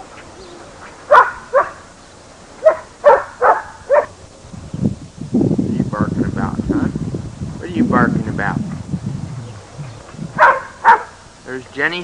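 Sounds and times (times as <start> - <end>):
dog barking: 1.1 - 1.8, 2.6 - 4.2, 10.4 - 11.2.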